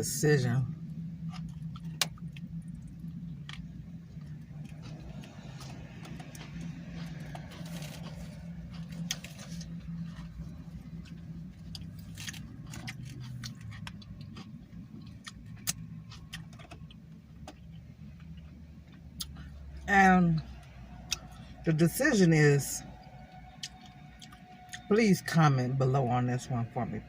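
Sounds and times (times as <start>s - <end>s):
steady low hum: 0.0s - 27.0s
chewing: 1.2s - 19.6s
food wrapper crinkling: 1.3s - 15.2s.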